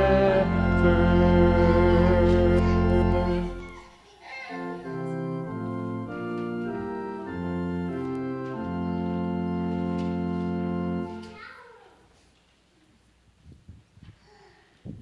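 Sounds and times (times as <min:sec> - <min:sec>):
church organ chords: 0:00.0 - 0:04.0, 0:04.6 - 0:11.3.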